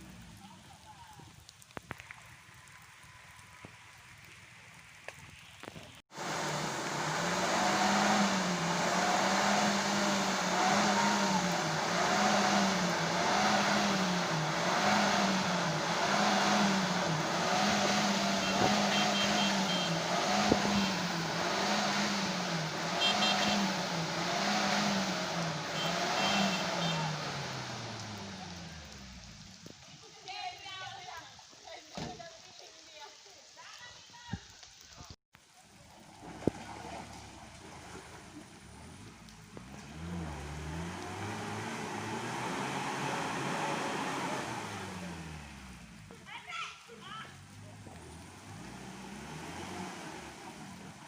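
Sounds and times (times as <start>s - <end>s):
road and tyre noise: 0.0s - 32.2s, 34.5s - 51.0s
truck engine revving: 6.1s - 29.6s, 36.4s - 46.1s, 47.4s - 51.0s.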